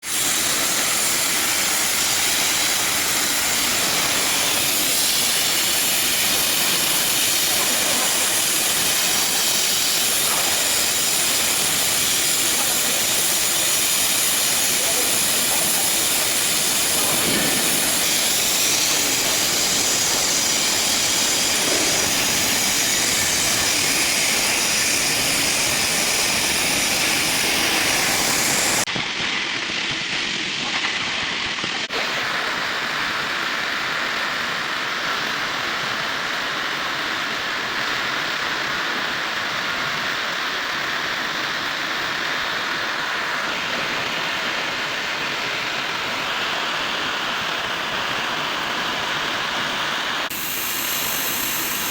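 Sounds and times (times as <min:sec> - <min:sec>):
cutting torch hissing: 0:00.0 - 0:51.9.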